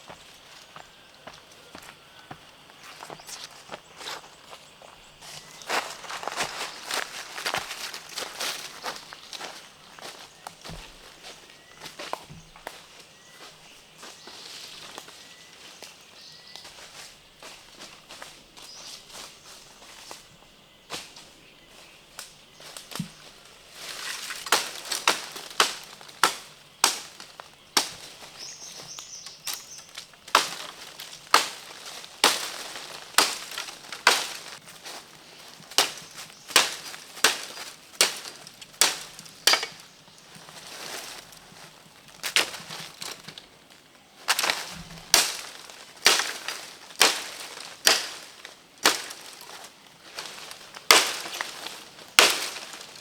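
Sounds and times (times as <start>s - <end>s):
sharp cracks and snaps: 24.0s - 28.2s, 29.4s - 34.6s, 35.7s - 40.3s, 44.3s - 49.6s, 50.2s - 53.0s.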